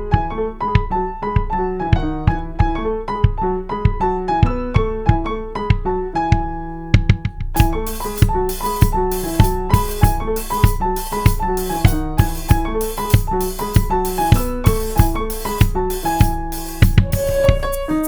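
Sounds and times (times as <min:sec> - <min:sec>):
drum kit beat: 0:07.1 - 0:18.0
keyboard melody: 0:07.6 - 0:18.0.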